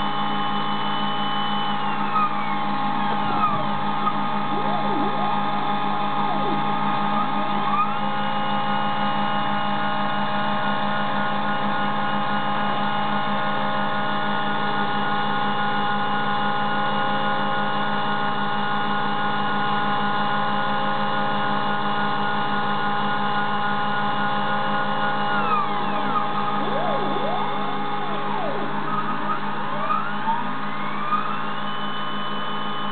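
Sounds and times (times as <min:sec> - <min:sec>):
stepper motors whining: 0:00.0 - 0:32.9
low hum: 0:24.8 - 0:32.8.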